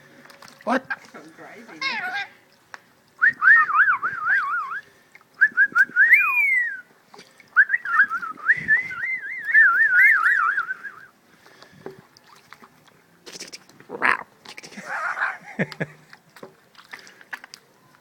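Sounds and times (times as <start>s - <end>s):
parrot whistled warbling calls: 6.0s - 6.8s, 9.0s - 11.0s.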